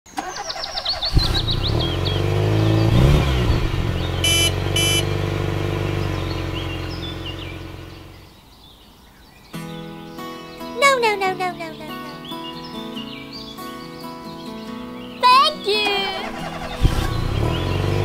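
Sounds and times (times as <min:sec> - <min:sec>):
bird chirps: 0:00.2 - 0:03.1, 0:03.9 - 0:05.1, 0:05.8 - 0:18.0
truck engine running: 0:00.3 - 0:08.3, 0:16.2 - 0:18.0
short beeps: 0:04.2 - 0:05.1.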